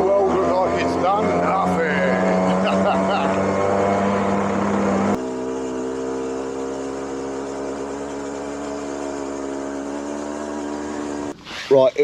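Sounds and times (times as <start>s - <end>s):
moped engine idling: 4.3s - 12.0s.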